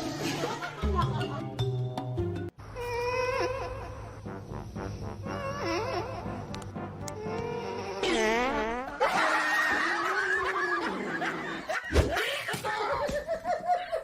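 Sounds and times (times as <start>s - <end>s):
people laughing: 0.0s - 1.6s, 9.0s - 14.0s.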